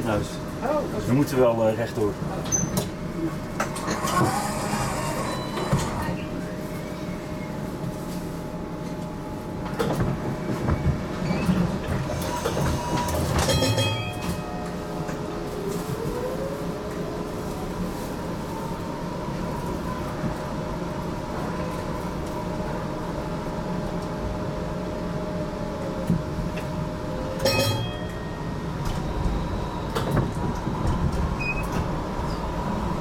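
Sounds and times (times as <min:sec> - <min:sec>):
tram rolling rumble: 0:00.0 - 0:33.0.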